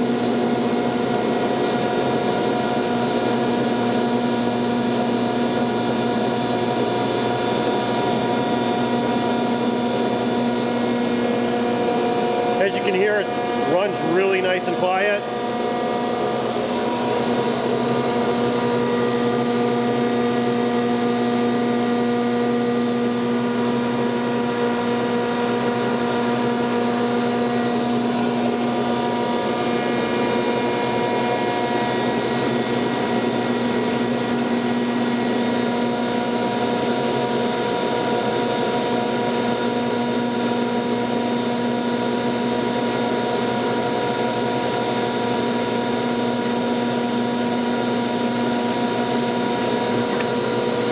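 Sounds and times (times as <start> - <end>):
planer whining: 0.0 - 50.9.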